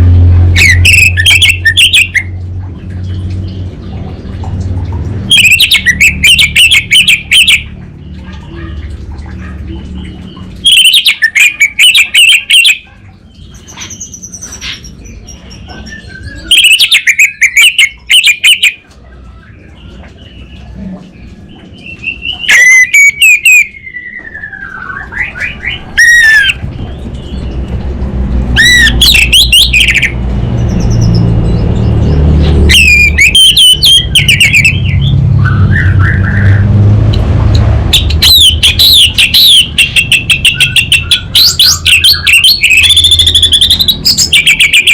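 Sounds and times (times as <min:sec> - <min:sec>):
thrush singing twittering phrases: 0:00.5 - 0:02.4, 0:05.2 - 0:08.2, 0:10.0 - 0:18.8, 0:21.4 - 0:27.9, 0:28.5 - 0:36.6, 0:37.9 - 0:44.9.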